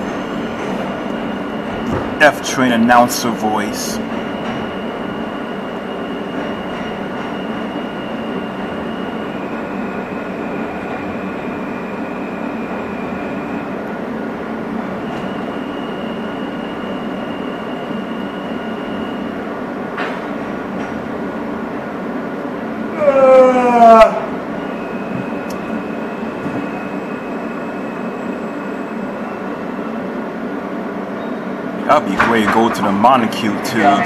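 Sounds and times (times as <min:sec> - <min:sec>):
subway car rumble: 0:00.0 - 0:34.0
faint whining tones: 0:24.2 - 0:32.4.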